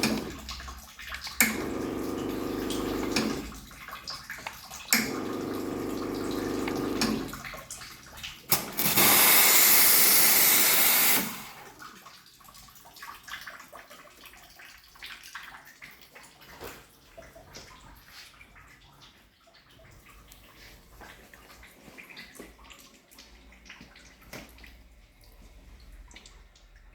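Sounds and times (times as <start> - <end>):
water dripping: 0.0 - 26.9
espresso machine pump humming: 1.4 - 3.5, 5.0 - 7.3, 8.8 - 11.5.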